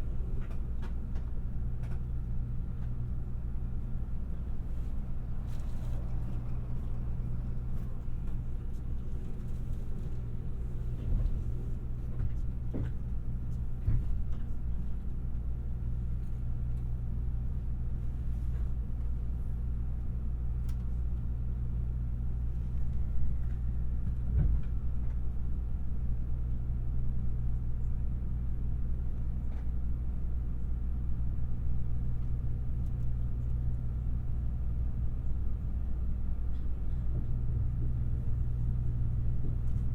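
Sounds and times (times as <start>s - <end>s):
train rumble: 0.0s - 39.9s
low hums: 3.8s - 13.8s.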